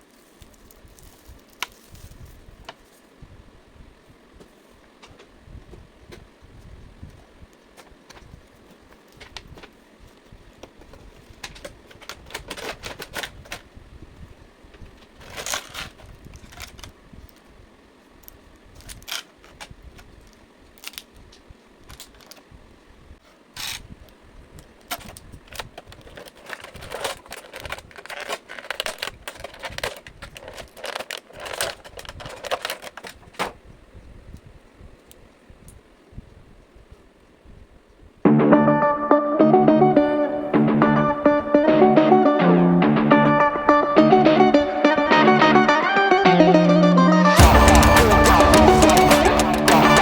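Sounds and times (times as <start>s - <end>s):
plastic packaging being opened: 25.0s - 33.3s.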